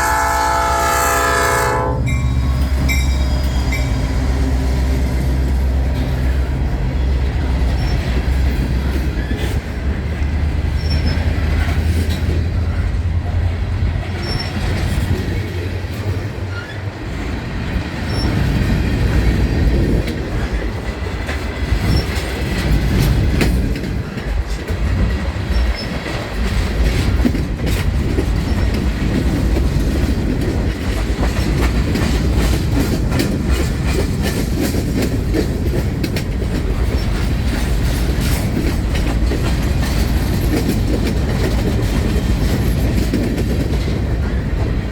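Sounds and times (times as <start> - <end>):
locomotive engine rumble: 0.0 - 21.2
train wheels clicking over rail joints: 0.0 - 44.9
high wheel squeals: 1.2 - 4.6.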